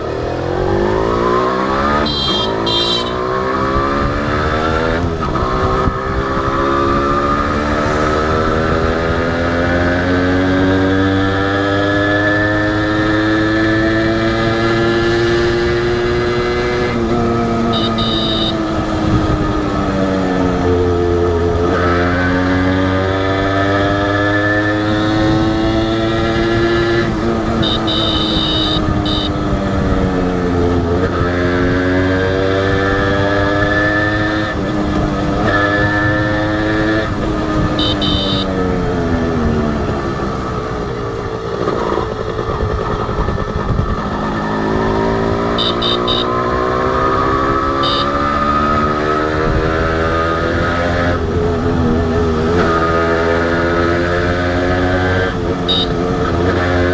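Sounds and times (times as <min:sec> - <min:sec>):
motorcycle engine accelerating: 0:00.0 - 0:56.9
short high beeps: 0:02.1 - 0:03.2, 0:17.8 - 0:18.6, 0:27.6 - 0:29.3, 0:37.8 - 0:38.5, 0:45.6 - 0:46.4, 0:47.8 - 0:48.2.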